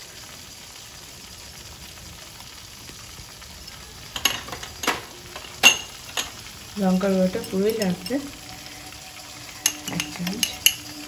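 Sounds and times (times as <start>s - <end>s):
paste sizzling in oil: 0.0s - 11.0s.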